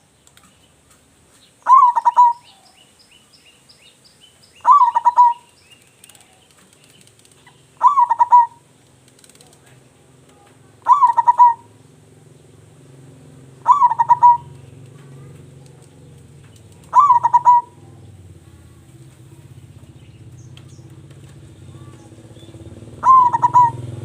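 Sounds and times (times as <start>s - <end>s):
steady low hum: 1.1s - 24.0s
dove cooing: 1.6s - 2.7s, 4.6s - 5.5s, 7.8s - 8.7s, 10.8s - 11.8s, 13.3s - 19.6s, 20.9s - 24.0s.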